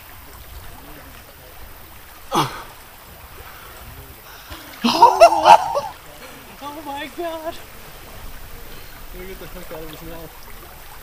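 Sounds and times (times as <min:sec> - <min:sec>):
men yelling and whooping: 0:04.5 - 0:07.6
men crying out: 0:04.8 - 0:06.0.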